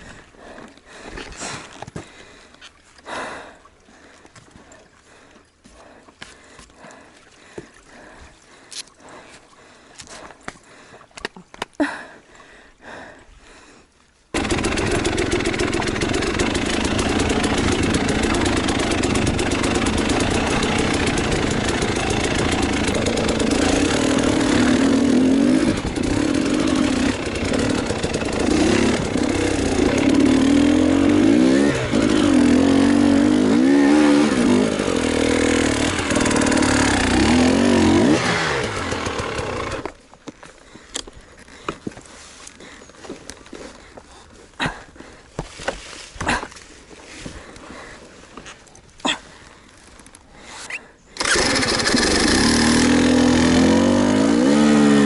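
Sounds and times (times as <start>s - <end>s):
motorcycle engine revving: 14.4s - 40.0s, 51.2s - 55.0s.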